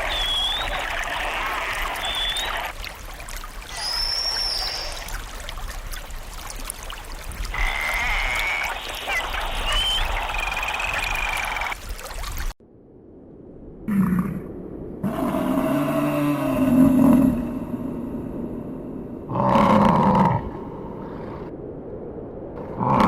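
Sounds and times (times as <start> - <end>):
thin high whistles: 0.0 - 1.0, 2.0 - 2.7, 3.7 - 5.2
trickling water: 0.0 - 12.6.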